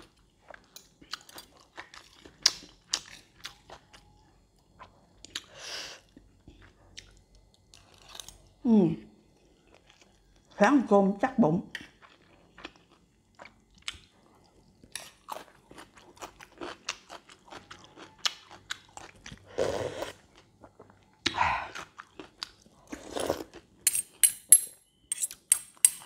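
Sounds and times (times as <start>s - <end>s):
chewing and crunching food: 0.0s - 8.6s, 9.2s - 10.6s, 11.7s - 23.8s
fork and spoon clinking on plate: 23.9s - 26.0s.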